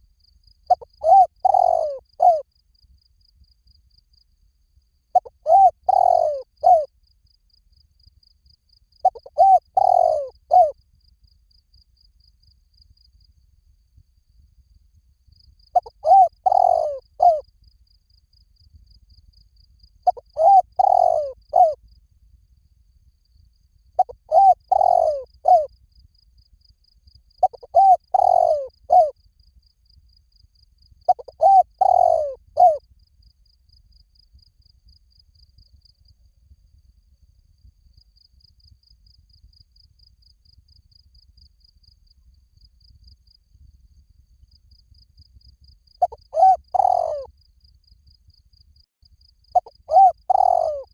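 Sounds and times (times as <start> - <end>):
dove cooing: 0.7 - 2.4, 5.2 - 6.9, 9.0 - 10.7, 15.8 - 17.4, 20.1 - 21.8, 24.0 - 25.7, 27.4 - 29.1, 31.1 - 32.8, 46.0 - 47.3, 49.6 - 50.9
high insect trill: 42.8 - 50.9.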